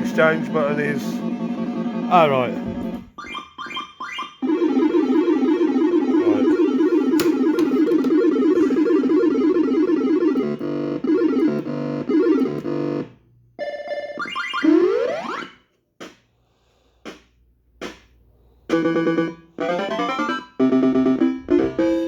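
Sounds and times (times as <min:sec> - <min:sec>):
fruit machine bleepy tune: 0:00.0 - 0:13.0.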